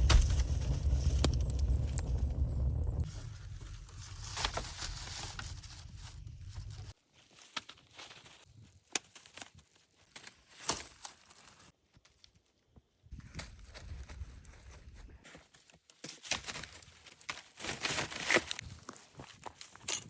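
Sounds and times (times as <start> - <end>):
low rumble: 0.0 - 6.9
rustling and crackling: 0.0 - 12.3.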